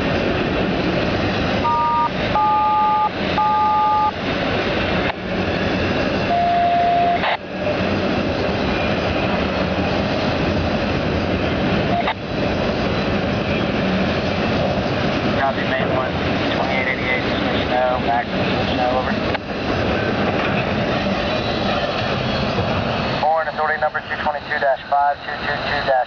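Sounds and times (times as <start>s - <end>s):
long single radio tone: 1.6s - 4.2s, 6.3s - 7.4s, 11.9s - 12.2s
two-tone radio beeps: 1.6s - 4.2s, 6.3s - 7.4s, 11.9s - 12.2s
radio hiss: 23.2s - 26.0s.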